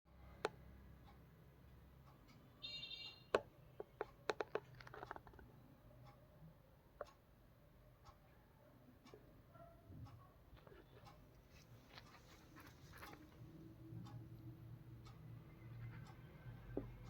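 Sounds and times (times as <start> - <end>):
clicks and taps in cage: 3.3 - 5.5.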